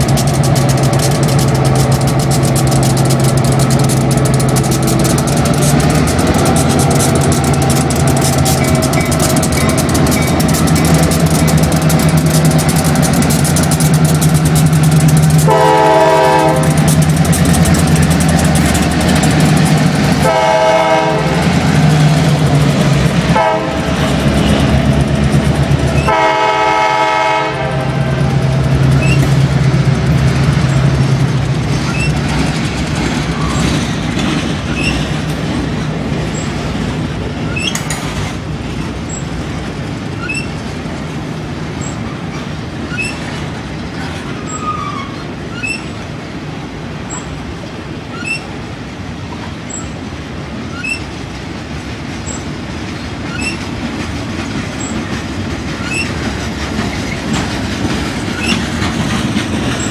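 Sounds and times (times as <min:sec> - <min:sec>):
diesel locomotive engines running: 0:00.0 - 0:59.9
hopper cars rattling: 0:00.0 - 0:59.9
locomotive horn: 0:15.4 - 0:16.9, 0:20.2 - 0:21.6, 0:23.3 - 0:24.0, 0:26.0 - 0:28.4.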